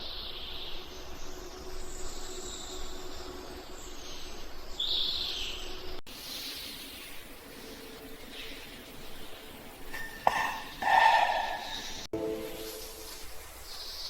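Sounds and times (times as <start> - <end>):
birds chirping: 8.2 - 13.1.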